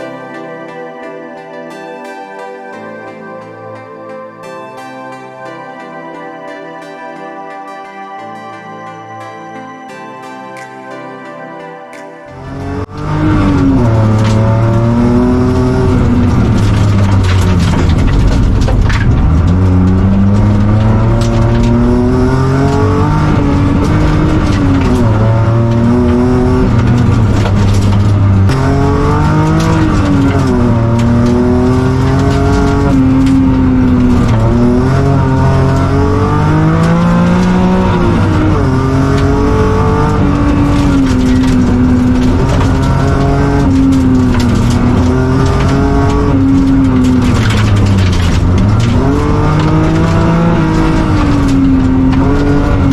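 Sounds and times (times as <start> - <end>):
rally car engine revving: 12.3 - 52.9
tyres on gravel: 12.3 - 52.9.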